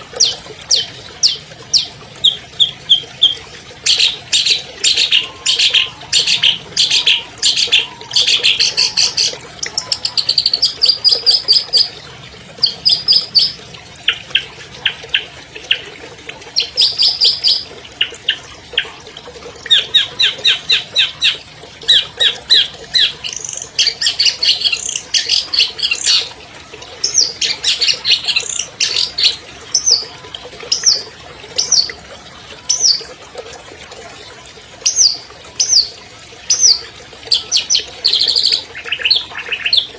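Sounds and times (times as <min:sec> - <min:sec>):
shrike singing trills: 0:00.2 - 0:11.9.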